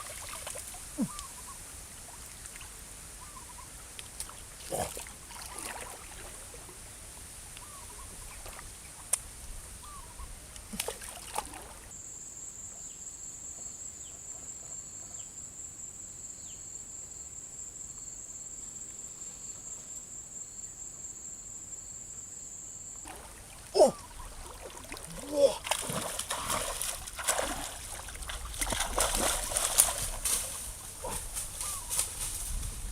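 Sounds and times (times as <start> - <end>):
faint chirps and clicks: 1.0 - 1.4, 7.5 - 9.3.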